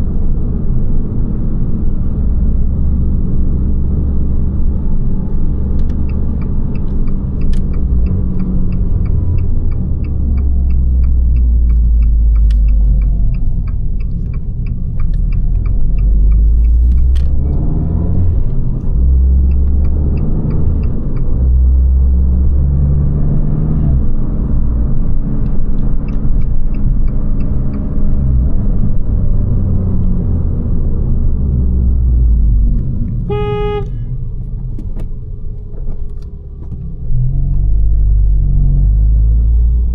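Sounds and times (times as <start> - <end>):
short car horn beep: 33.3 - 34.2.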